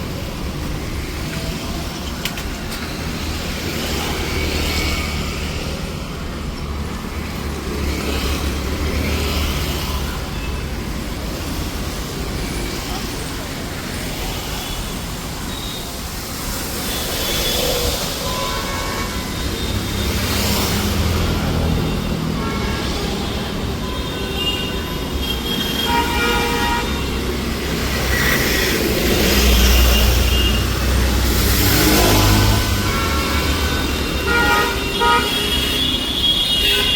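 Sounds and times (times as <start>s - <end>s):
city street traffic rumble: 0.0s - 36.9s
vehicle horns honking: 22.4s - 28.6s, 31.8s - 36.9s.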